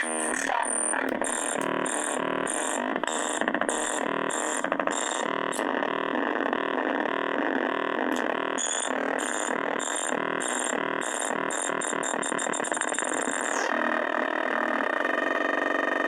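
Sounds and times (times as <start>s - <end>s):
high electronic bleep pulsing: 8.6s - 13.7s.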